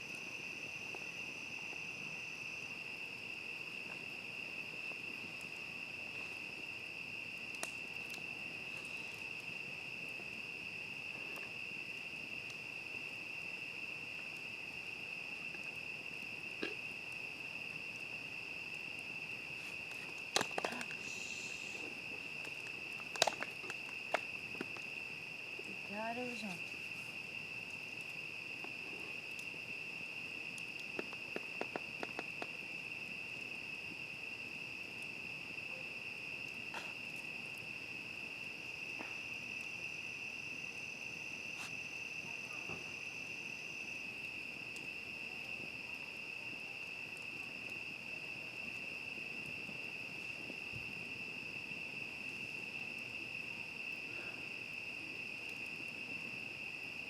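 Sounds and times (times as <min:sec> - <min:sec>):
crickets trilling: 0:00.0 - 0:57.0
higher insect voice: 0:20.6 - 0:22.1.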